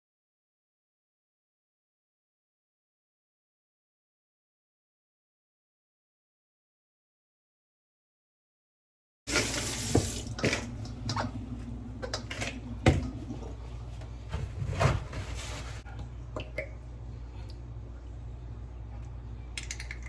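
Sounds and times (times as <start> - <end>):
steady low hum: 9.7 - 20.0.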